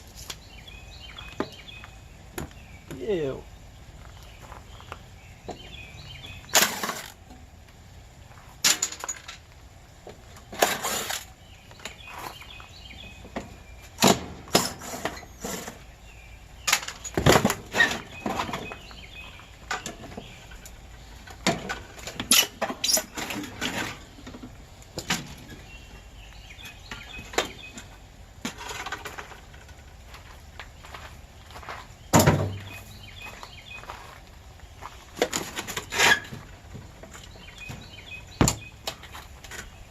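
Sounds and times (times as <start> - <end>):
metal clanks and knocks: 8.6 - 9.5, 19.6 - 25.7, 35.2 - 39.8.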